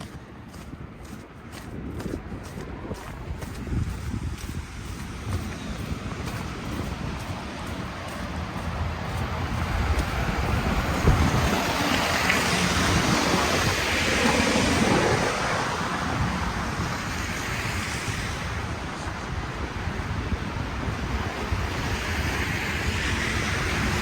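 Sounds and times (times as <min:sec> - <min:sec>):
wind rumbling on microphone: 0:00.0 - 0:24.0
vehicle tyre hiss on snow: 0:03.4 - 0:24.0.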